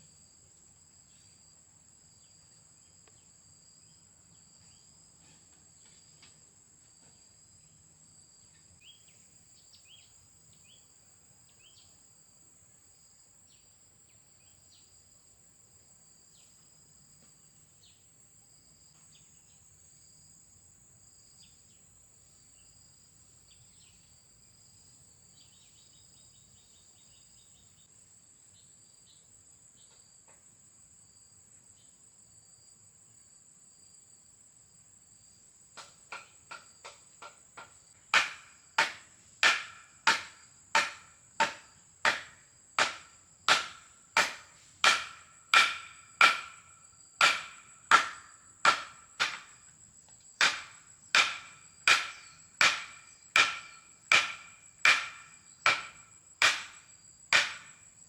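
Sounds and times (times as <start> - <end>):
crickets droning: 0.0 - 58.0
ringing hammer blows: 38.2 - 49.5, 50.4 - 56.8.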